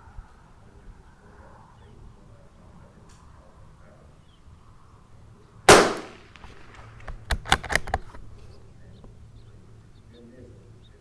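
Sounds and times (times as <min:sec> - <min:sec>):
rifle shot: 0:05.7 - 0:08.3
rifle bolt clicking: 0:05.7 - 0:08.4.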